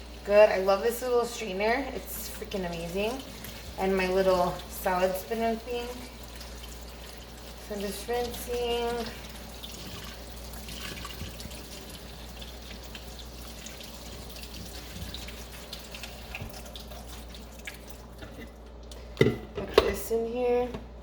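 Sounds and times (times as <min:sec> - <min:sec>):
tap water running: 0:00.0 - 0:19.3
water splashing on lettuce: 0:02.2 - 0:18.2.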